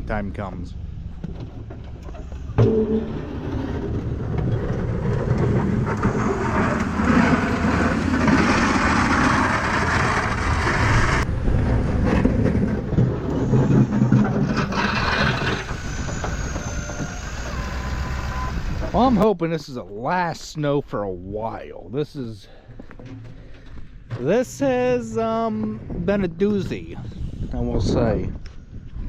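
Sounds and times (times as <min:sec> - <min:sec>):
snowplow engine running: 0:02.4 - 0:19.2
rushing noise: 0:02.5 - 0:19.0.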